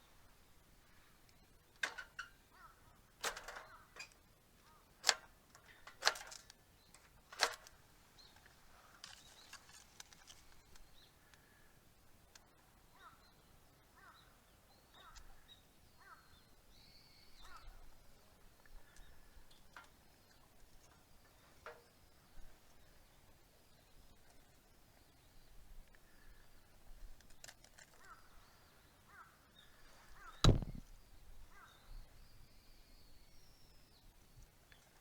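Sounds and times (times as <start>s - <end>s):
faint short bird calls: 2.5s - 3.0s, 12.9s - 13.3s, 14.0s - 17.9s, 27.9s - 33.2s
sharp cracks or knocks: 30.4s - 30.8s.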